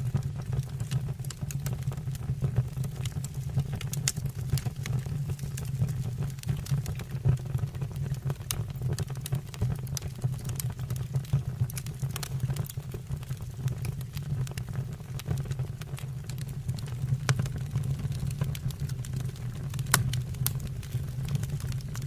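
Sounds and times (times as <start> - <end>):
low steady rumble: 0.0 - 7.7
wood fire crackling and popping: 0.0 - 22.0.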